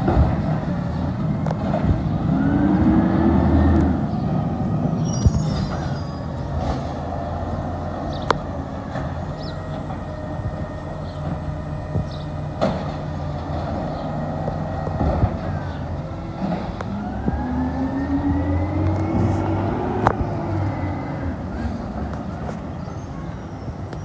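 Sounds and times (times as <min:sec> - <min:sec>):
garbage truck engine running: 0:00.0 - 0:23.9
rising whine: 0:16.8 - 0:21.6.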